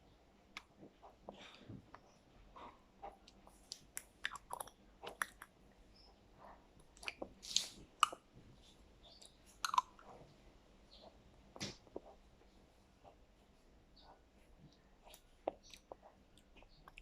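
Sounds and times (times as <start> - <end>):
wet smacking and chewing: 0.5 - 5.6, 6.8 - 8.3, 9.1 - 10.2, 14.7 - 17.0.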